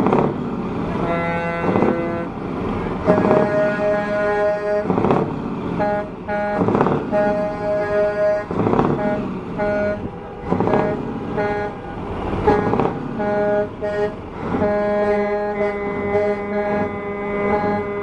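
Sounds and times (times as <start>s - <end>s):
loud noisy rushes: 0.0s - 18.0s
truck air horn blasts: 0.8s - 18.0s.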